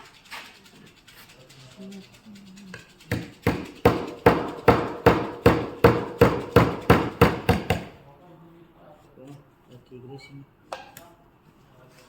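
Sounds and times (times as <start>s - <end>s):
hammer blows ringing: 3.5s - 7.9s.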